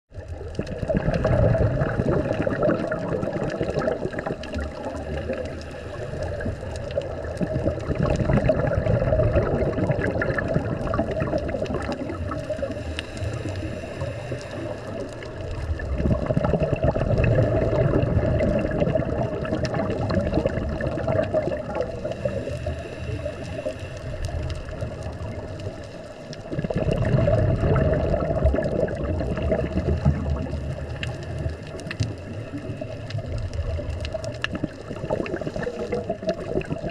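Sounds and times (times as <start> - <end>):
regulator bubbles gurgling underwater: 0.1 - 36.9
diver breathing: 5.0 - 7.2, 12.3 - 15.7, 21.8 - 26.4.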